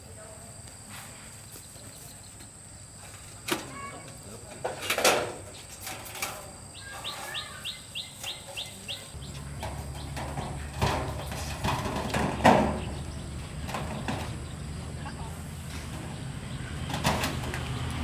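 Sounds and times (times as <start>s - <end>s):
bird chirping: 6.7s - 18.0s
knocks: 9.2s - 15.0s.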